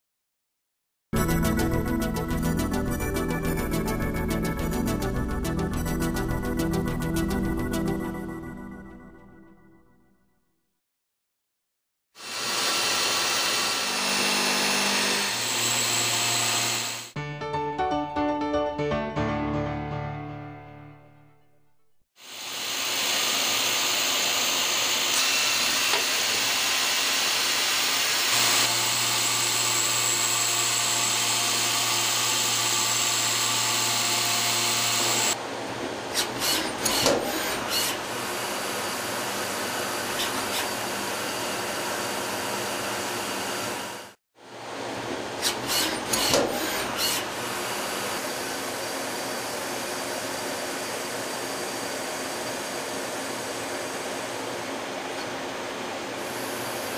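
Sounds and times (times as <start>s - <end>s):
lathe machining hiss: 12.2s - 14.2s, 22.2s - 28.3s.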